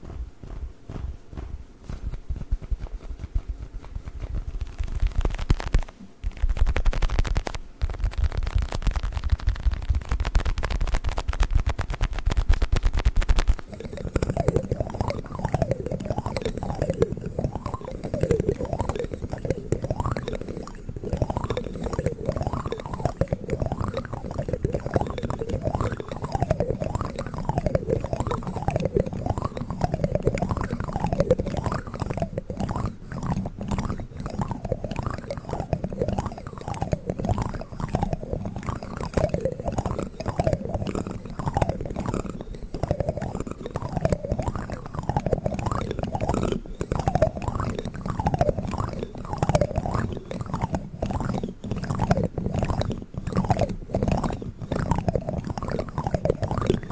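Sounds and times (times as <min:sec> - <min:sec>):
toy ball crackling: 0:02.0 - 0:56.9
plastic spoons whining: 0:13.2 - 0:56.9.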